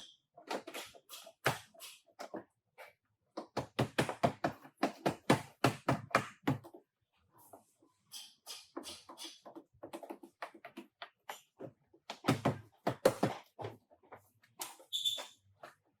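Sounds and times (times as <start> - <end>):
short high squeak: 14.9 - 15.4.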